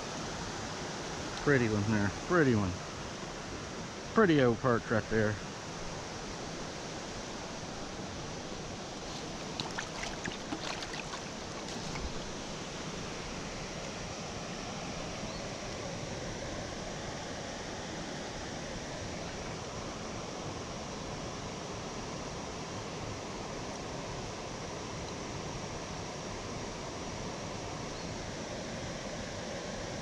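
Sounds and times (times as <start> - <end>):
water rushing: 0.0 - 17.4.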